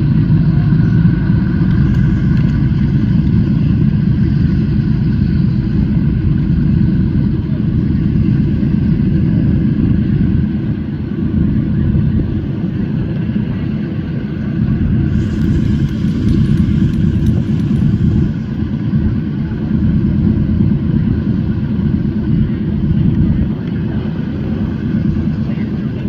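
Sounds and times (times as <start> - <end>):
radial aircraft engines rumbling: 0.0 - 26.0
hiss with faint clicking: 15.1 - 18.7.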